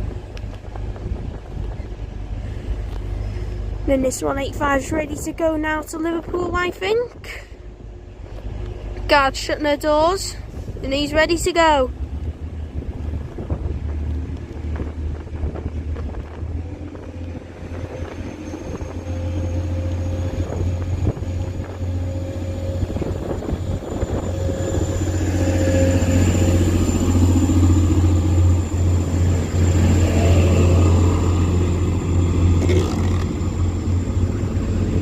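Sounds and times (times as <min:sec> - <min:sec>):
diesel train engine drone: 0:00.0 - 0:35.0.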